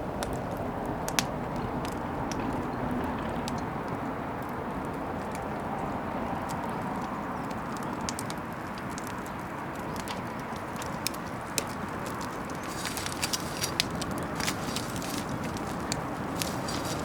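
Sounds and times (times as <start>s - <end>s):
fire crackling and popping: 0.0s - 17.0s
bonfire flame rushing: 3.6s - 17.0s.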